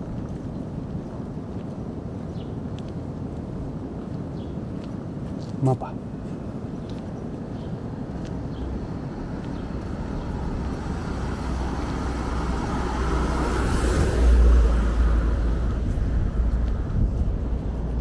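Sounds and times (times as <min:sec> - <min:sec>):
car driving past: 0:09.7 - 0:16.8.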